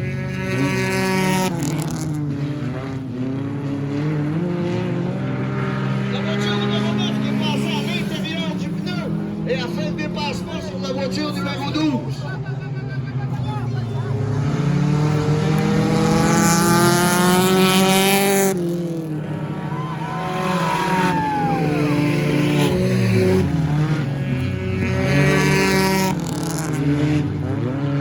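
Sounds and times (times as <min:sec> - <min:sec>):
race car engines passing: 0:00.0 - 0:28.0.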